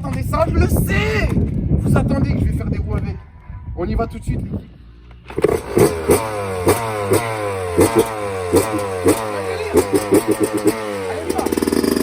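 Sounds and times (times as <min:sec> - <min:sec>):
dirt bike engine revving: 0:05.2 - 0:12.0.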